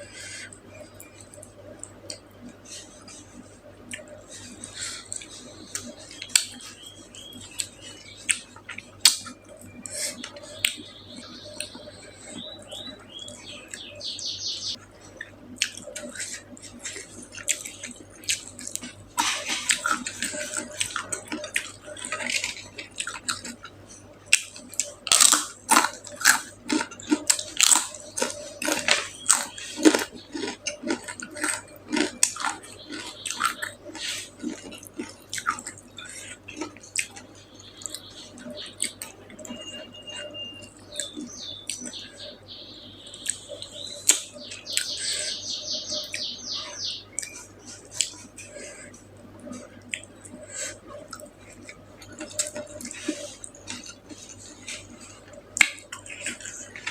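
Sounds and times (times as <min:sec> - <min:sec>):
person chewing and smacking food: 0:00.0 - 0:13.9, 0:14.7 - 0:42.2, 0:43.1 - 0:56.9.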